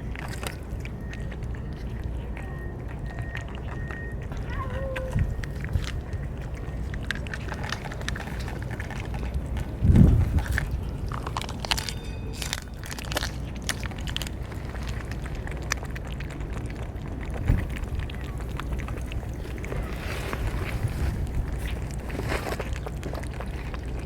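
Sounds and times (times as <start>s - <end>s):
cats eating with crunching clicks: 0.0s - 24.0s
steady low rumble: 0.0s - 24.0s.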